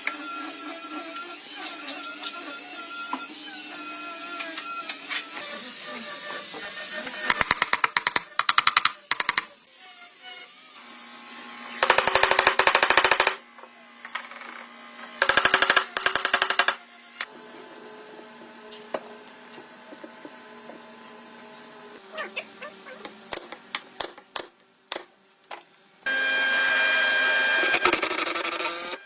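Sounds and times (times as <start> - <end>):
power tool rapid clicks: 7.3 - 9.5, 15.2 - 16.8.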